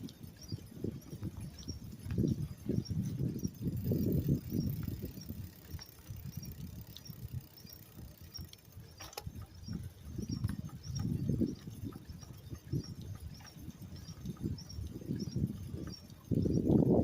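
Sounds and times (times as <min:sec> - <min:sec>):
bicycle clicks and rattles: 0:00.0 - 0:17.0
wind buffeting microphone: 0:00.0 - 0:17.0.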